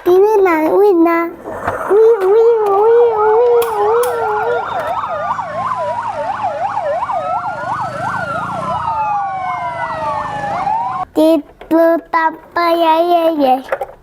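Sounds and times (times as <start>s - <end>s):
toy fire truck siren: 1.4s - 11.1s.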